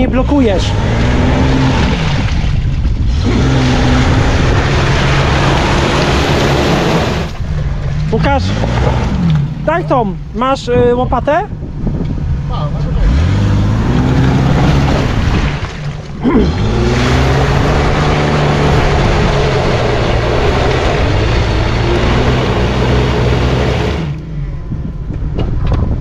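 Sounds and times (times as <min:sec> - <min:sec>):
engine revving hard: 0:00.4 - 0:07.4, 0:12.9 - 0:24.2.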